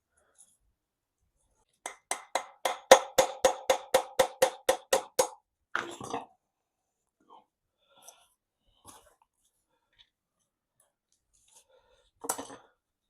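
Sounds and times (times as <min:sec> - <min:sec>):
hammer tapping metal punch: 0:01.9 - 0:05.4.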